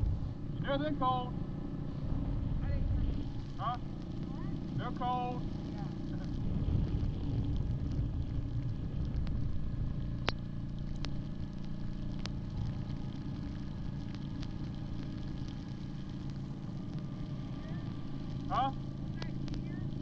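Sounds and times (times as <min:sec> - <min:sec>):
engine running with low rumble: 0:00.0 - 0:20.0.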